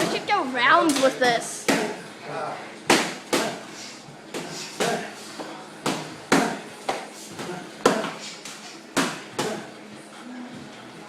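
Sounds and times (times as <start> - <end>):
punches smacking: 0.9 - 2.0, 2.8 - 3.7, 4.3 - 5.1, 5.8 - 9.7.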